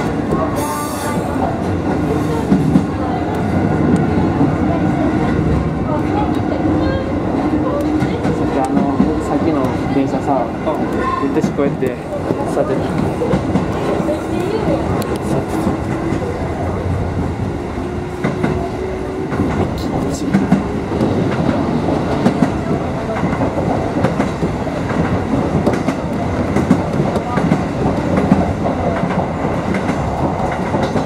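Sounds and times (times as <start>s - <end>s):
train running rumble: 0.0s - 31.0s
wheels clacking over rail joints: 19.3s - 31.0s.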